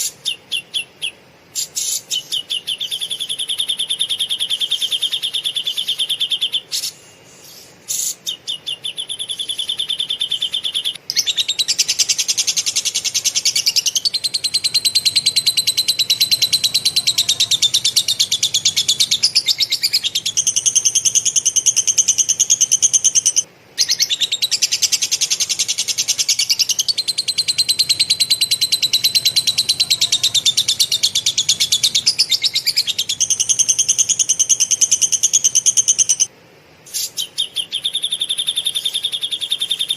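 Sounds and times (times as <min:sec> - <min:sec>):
songbird singing fast trills: 0:00.0 - 0:36.3, 0:36.9 - 0:39.9.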